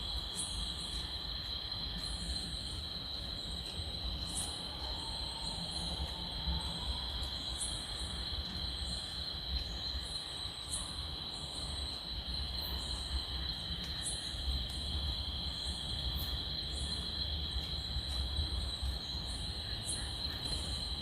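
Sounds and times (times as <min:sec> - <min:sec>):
high insect chirp: 0:00.0 - 0:21.0.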